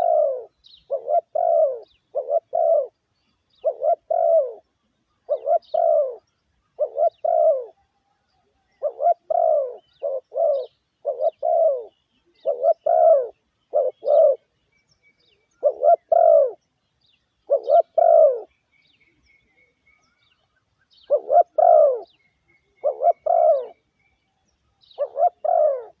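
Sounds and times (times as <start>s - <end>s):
dove cooing: 0.0s - 14.5s, 15.4s - 16.6s, 17.4s - 18.5s, 21.0s - 23.8s, 24.9s - 26.0s.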